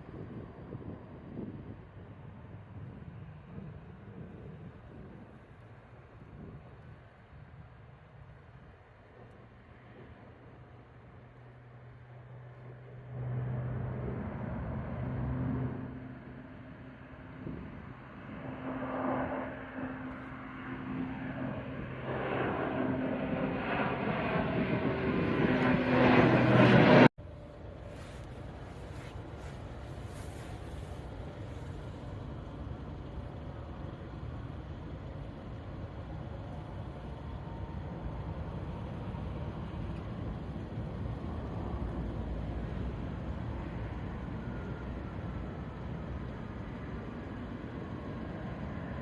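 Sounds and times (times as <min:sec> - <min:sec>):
jet airliner taking off: 0:12.2 - 0:49.0.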